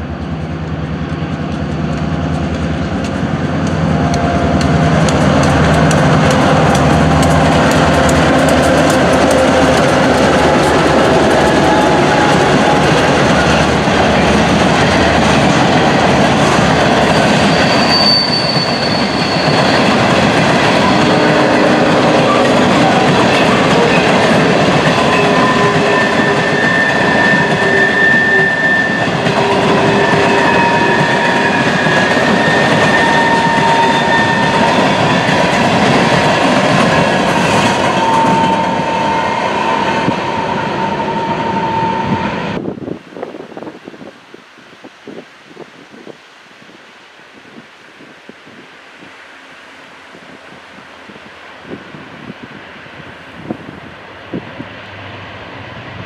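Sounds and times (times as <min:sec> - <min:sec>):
train wheels clicking over rails: 0:00.0 - 0:40.4
high-pitched wheel squeal: 0:17.0 - 0:20.1, 0:25.0 - 0:35.2, 0:37.4 - 0:42.6.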